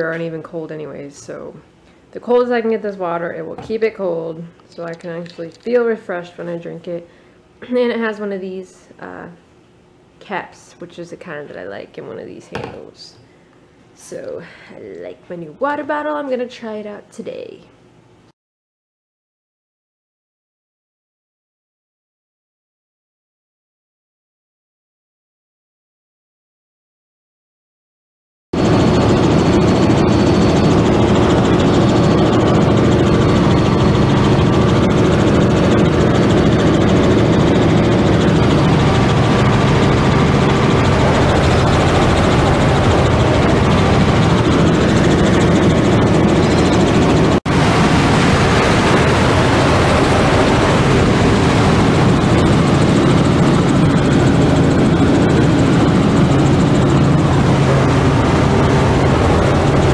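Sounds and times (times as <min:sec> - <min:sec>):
helicopter engine and rotor drone: 0:28.6 - 0:59.9.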